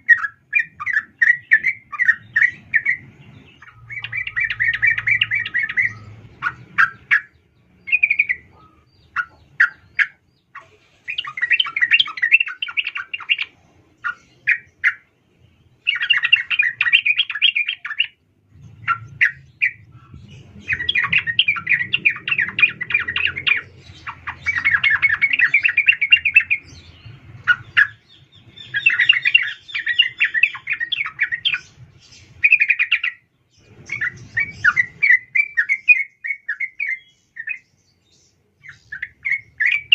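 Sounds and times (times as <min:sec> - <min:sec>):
bird chattering call: 0:15.8 - 0:31.7.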